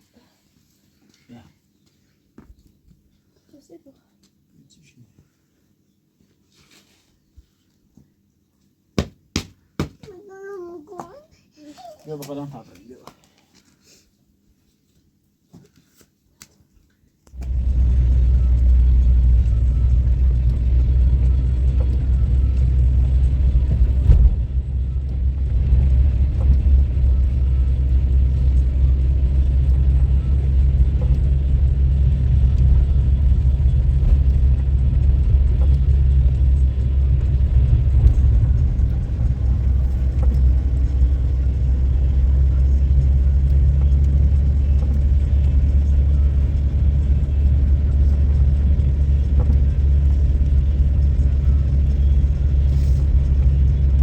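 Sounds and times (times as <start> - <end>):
motor vehicle rumbling: 17.3 - 54.0.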